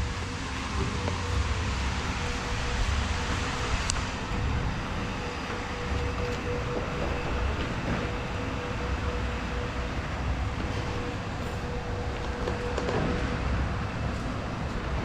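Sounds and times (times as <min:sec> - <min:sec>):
steady hum: 0:00.0 - 0:15.0
traffic rumble: 0:00.0 - 0:15.0.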